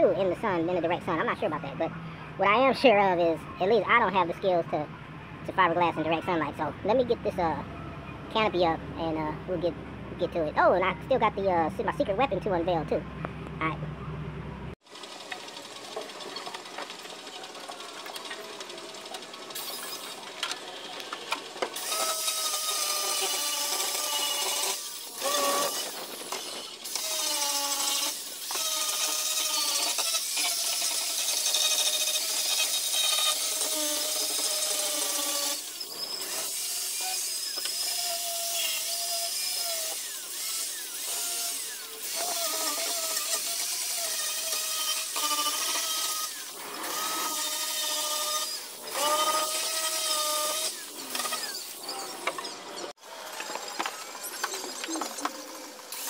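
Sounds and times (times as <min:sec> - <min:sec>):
power drill whining: 0:15.0 - 0:56.0.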